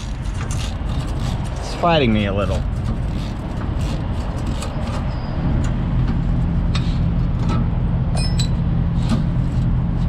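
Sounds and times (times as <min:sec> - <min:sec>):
metallic clink: 0:08.1 - 0:08.6.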